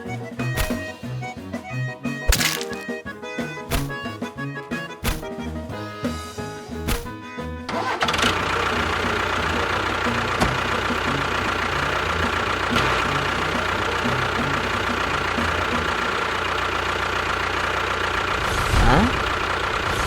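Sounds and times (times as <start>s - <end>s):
sharp clicks: 0.6s - 1.0s, 3.7s - 4.0s.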